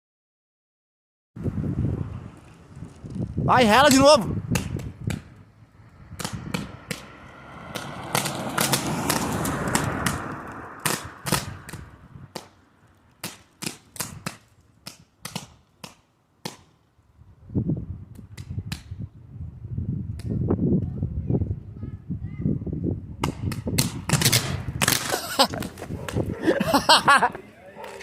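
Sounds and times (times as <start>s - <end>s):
electrical arcing cracks and snaps: 7.8s - 16.7s, 23.2s - 25.8s.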